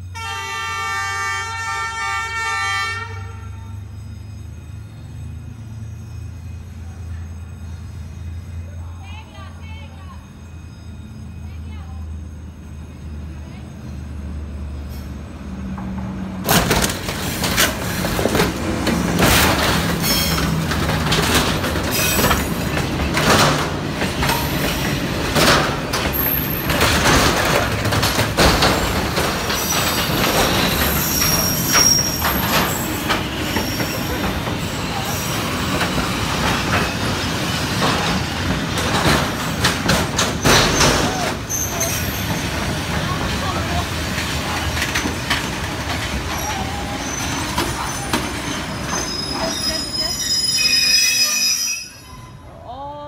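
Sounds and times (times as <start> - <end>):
freight train rumble: 0.0 - 53.0
metal scraping and banging: 16.4 - 49.9
wheel squeal: 19.2 - 52.6.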